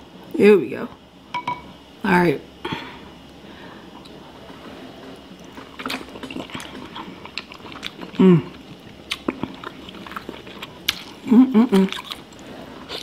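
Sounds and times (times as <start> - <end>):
chewing with wet mouth sounds: 5.1 - 13.0
person humming: 8.2 - 8.6, 11.2 - 12.0.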